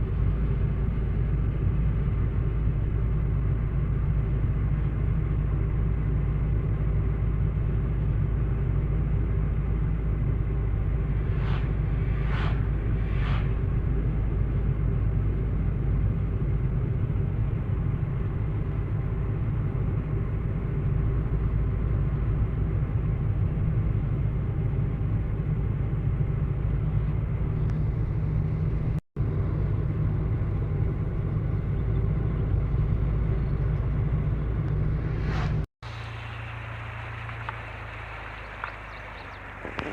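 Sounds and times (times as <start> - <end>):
low rumble: 0.0 - 39.9
short rushing sounds: 10.9 - 14.2, 35.0 - 38.5.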